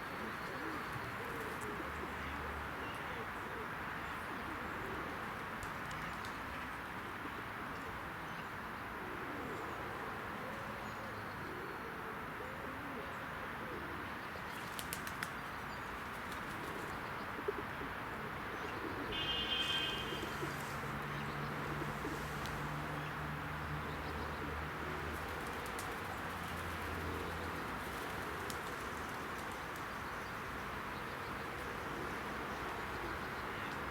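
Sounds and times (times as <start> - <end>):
pigeons cooing: 0.0 - 2.2, 3.1 - 5.3, 16.3 - 23.1, 24.1 - 29.8, 31.2 - 33.9
outdoor background noise: 0.0 - 33.9.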